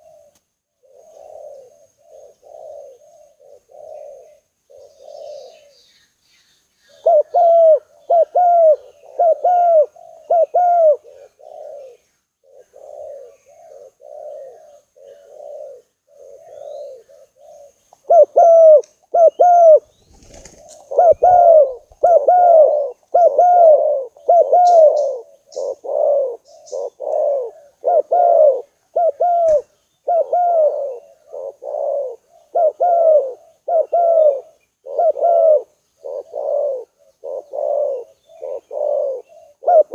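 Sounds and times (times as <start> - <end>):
dove cooing: 0.0 - 5.9, 6.9 - 39.9.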